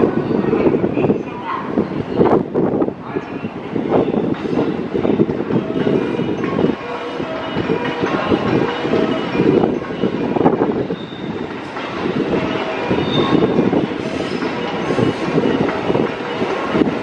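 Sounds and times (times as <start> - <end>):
train wheels rumbling and clattering: 0.0 - 17.0
high wheel squeals: 10.8 - 11.8, 12.5 - 16.6.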